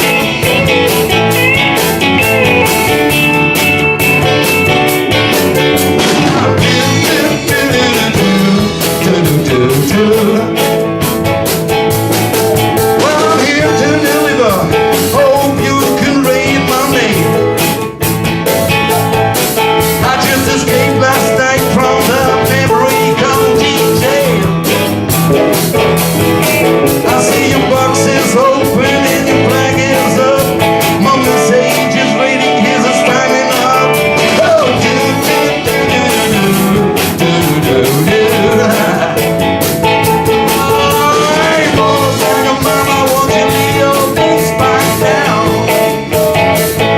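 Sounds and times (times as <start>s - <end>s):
guitar: 0.0s - 46.9s
live blues-rock band: 0.0s - 46.9s
person singing: 4.4s - 11.2s, 12.8s - 18.0s, 19.8s - 25.0s, 26.6s - 46.9s.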